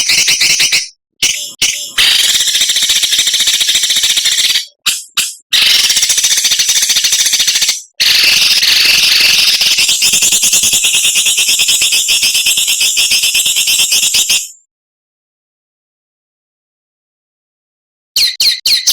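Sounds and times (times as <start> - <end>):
songbird rasping chatter: 0.0 - 12.9.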